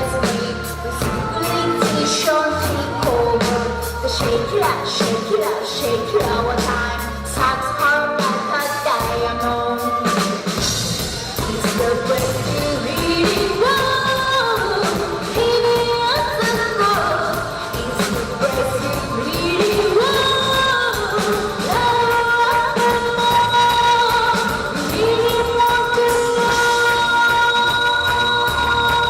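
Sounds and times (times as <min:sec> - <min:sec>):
live band playing: 0:00.0 - 0:29.0
woman singing: 0:00.0 - 0:29.0.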